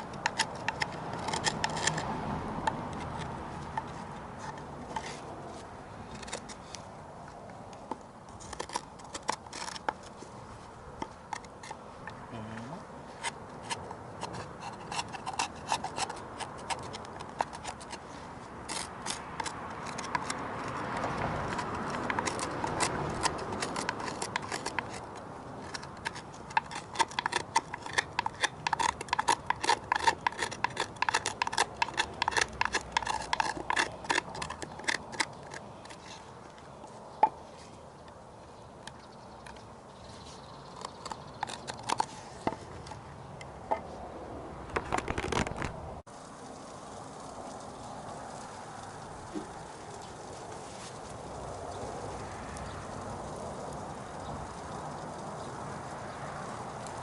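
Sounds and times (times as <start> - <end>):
carving tool scraping wood: 0.0 - 7.0, 7.8 - 12.2, 13.0 - 37.8, 38.9 - 43.0.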